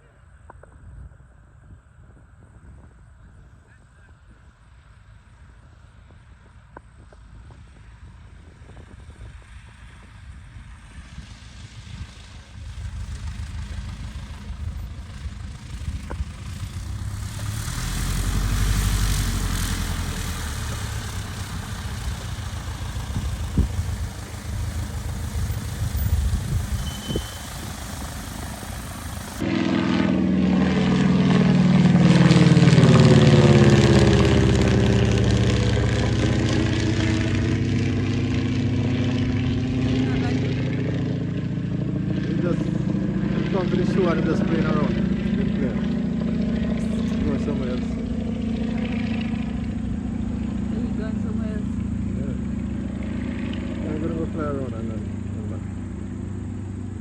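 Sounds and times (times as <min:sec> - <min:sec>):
aircraft engine and propeller droning: 0:00.0 - 0:57.0
rushing air: 0:10.6 - 0:31.6.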